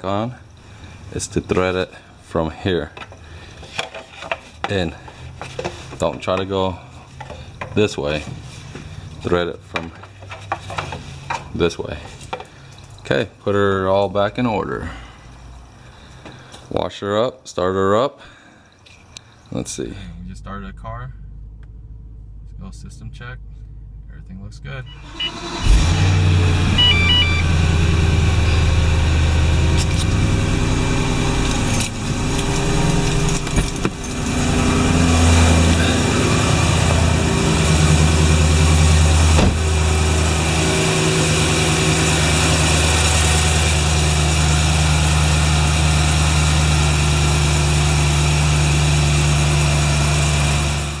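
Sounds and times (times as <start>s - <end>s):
car engine idling: 19.9s - 51.0s.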